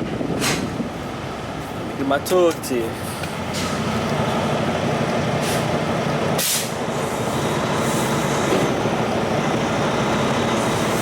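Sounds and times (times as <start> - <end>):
diesel truck engine running: 0.0 - 11.0
air brake hiss: 5.4 - 5.7, 6.4 - 6.8.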